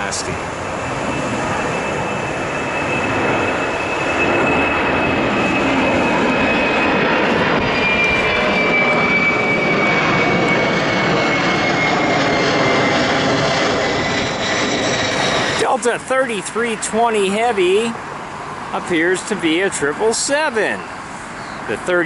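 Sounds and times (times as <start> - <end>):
jet airliner engines at takeoff: 0.0 - 22.0.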